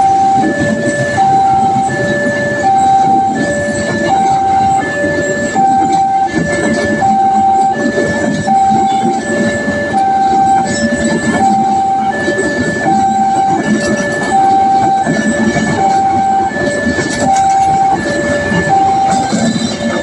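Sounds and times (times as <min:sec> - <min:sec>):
train rumbling and rattling: 0:00.0 - 0:20.0
two-tone electronic warning alarm: 0:00.0 - 0:20.0.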